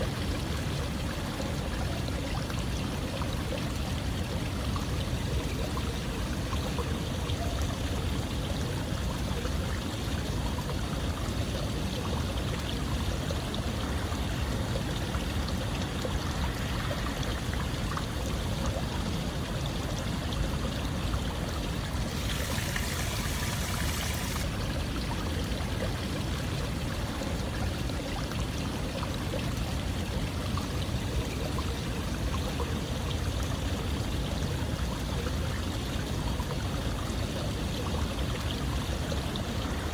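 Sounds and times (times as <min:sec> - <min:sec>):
running water rushing: 0:10.4 - 0:34.0, 0:36.1 - 0:39.9.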